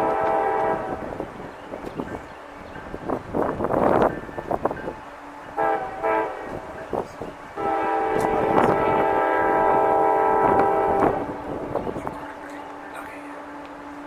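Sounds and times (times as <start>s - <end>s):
locomotive air horn blasts: 0.0s - 1.4s, 5.5s - 6.9s, 7.6s - 14.0s.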